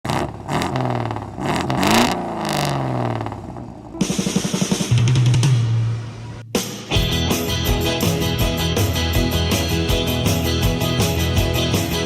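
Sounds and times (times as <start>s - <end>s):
car engine revving: 0.1s - 6.5s.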